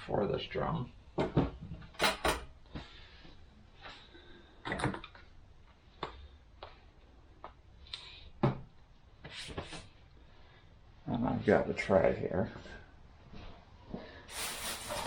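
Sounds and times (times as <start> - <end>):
clicks and knocks of metal parts: 1.2 - 2.5.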